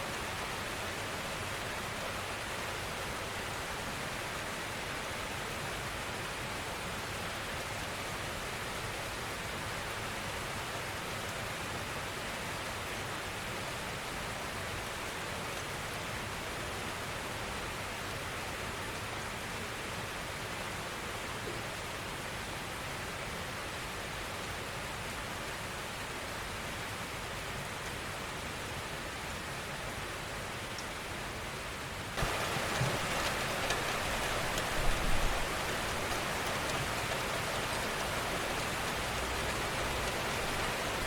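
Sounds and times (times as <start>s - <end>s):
steady rain hiss: 0.0s - 41.0s.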